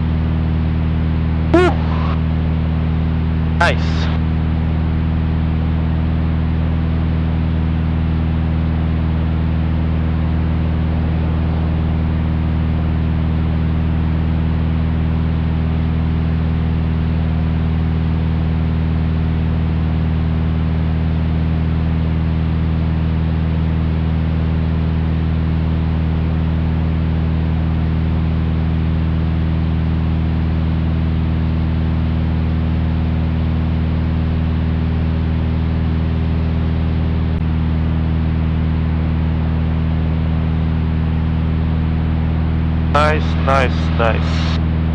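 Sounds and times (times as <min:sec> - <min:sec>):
light aircraft engine drone: 0:43.0 - 0:44.6.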